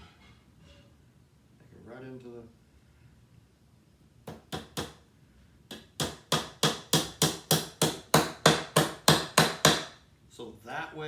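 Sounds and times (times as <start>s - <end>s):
hammer hitting nail into wood: 4.3s - 5.0s, 5.7s - 10.0s.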